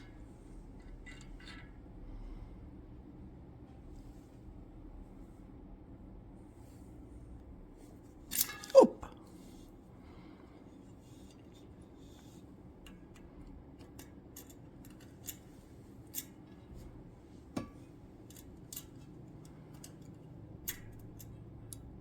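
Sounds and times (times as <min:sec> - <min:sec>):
faint steady hum: 0:00.0 - 0:22.0
small metal tools clicking: 0:08.3 - 0:08.8, 0:12.9 - 0:15.5, 0:18.3 - 0:21.9.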